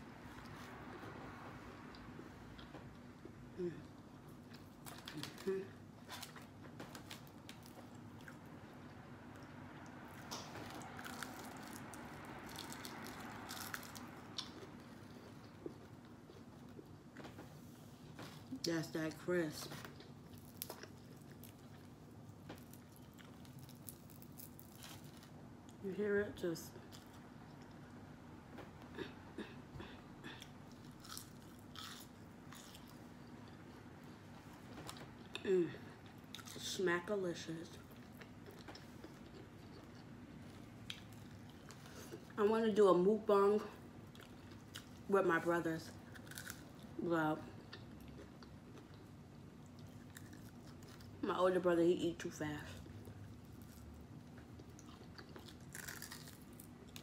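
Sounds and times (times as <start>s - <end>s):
crunching while chewing: 4.3s - 9.5s, 10.1s - 17.4s, 19.6s - 25.8s, 30.3s - 35.4s, 36.0s - 36.7s, 37.8s - 42.4s, 44.0s - 45.1s, 45.8s - 47.0s, 47.6s - 51.2s, 52.8s - 57.0s
chewing: 30.4s - 34.2s, 37.8s - 42.4s, 46.0s - 46.8s, 47.6s - 51.2s, 52.8s - 57.0s
crunchy bite into fried chicken: 46.1s - 46.6s, 55.3s - 57.0s.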